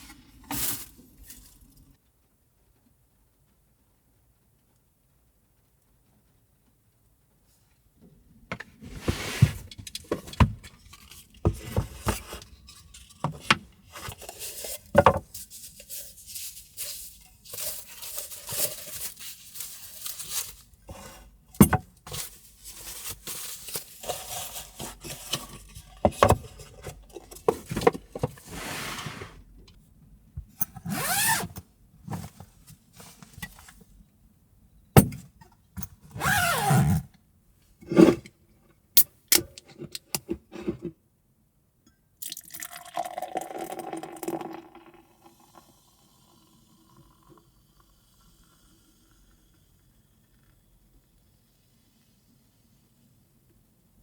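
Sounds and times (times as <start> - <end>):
objects scraping and rattling: 8.5 - 29.4.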